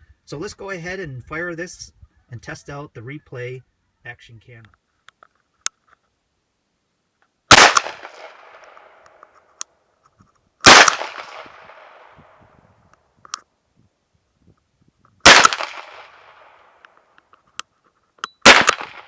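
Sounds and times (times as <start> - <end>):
revolver gunshots with echo: 7.5 - 9.0, 10.6 - 12.2, 15.2 - 16.7, 18.4 - 19.0.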